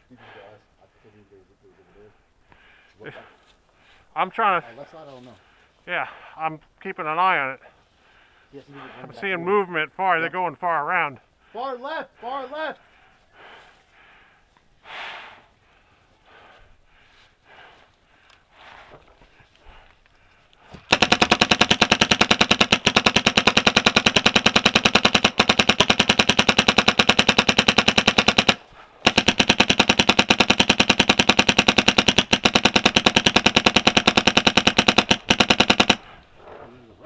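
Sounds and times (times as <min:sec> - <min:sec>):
paintball marker firing rapidly: 0:20.8 - 0:36.2.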